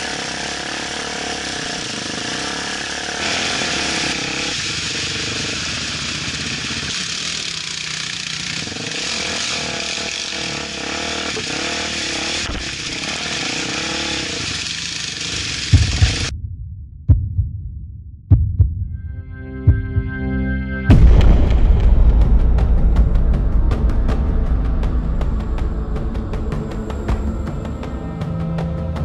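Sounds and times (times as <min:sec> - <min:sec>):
motorcycle engine revving: 0:00.0 - 0:16.3, 0:22.5 - 0:29.0
heavy low thumps: 0:15.8 - 0:20.2, 0:20.9 - 0:28.2.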